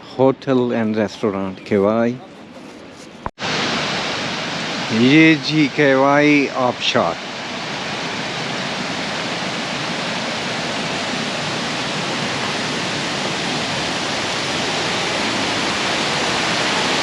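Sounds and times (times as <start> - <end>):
waterfall rushing: 3.4 - 17.0.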